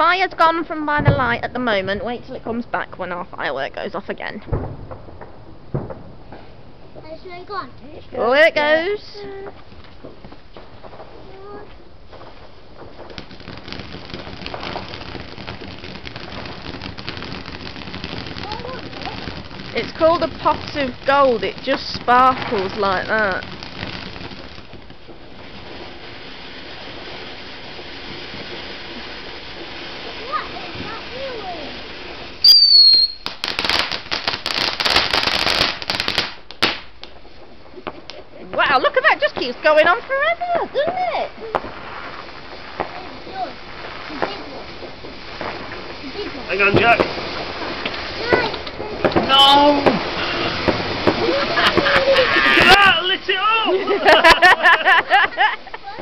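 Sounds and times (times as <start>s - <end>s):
firework fountain hissing and crackling: 0.0s - 56.0s
firework whistle: 32.3s - 33.5s, 46.7s - 55.1s.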